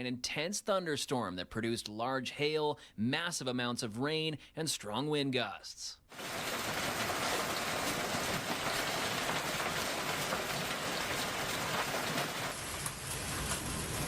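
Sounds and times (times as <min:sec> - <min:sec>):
heavy rain hissing: 0:06.1 - 0:14.0
raindrops ticking on surfaces: 0:06.1 - 0:14.0.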